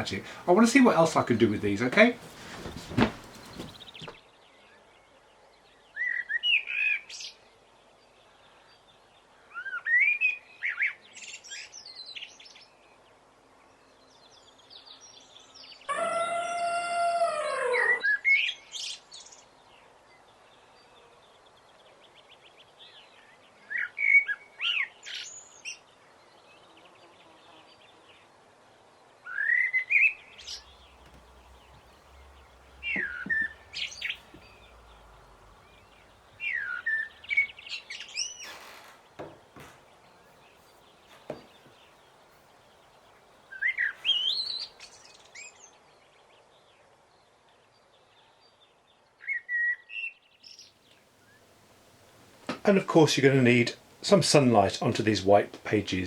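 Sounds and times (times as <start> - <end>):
songbird chirping: 0.0 - 4.1, 30.2 - 45.6
faint steady background noise: 0.0 - 4.4, 25.3 - 49.3, 50.1 - 56.0.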